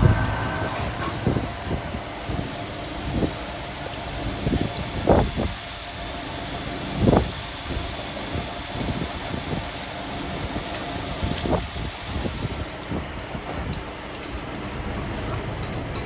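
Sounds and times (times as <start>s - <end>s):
machine bumps: 0.0s - 3.3s
grinding machine humming and hissing: 0.0s - 11.6s.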